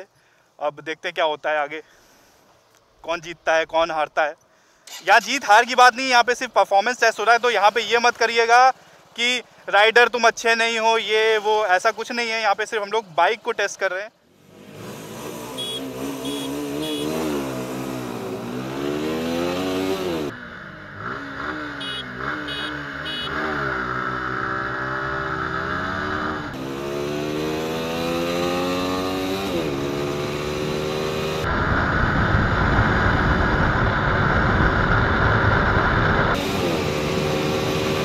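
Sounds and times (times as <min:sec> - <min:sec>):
motorcycle engines accelerating: 0:14.4 - 0:38.0.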